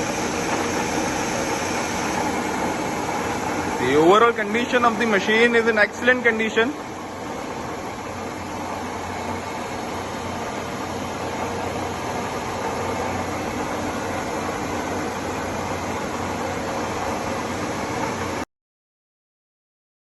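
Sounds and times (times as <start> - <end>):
milling machine humming: 0.0 - 18.4.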